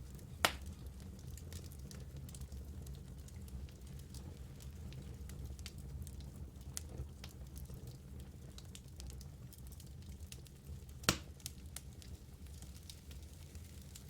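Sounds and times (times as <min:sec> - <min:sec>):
logs crackling in fireplace: 0:00.0 - 0:14.0
loud pop of fire: 0:00.4 - 0:00.7, 0:11.0 - 0:11.5.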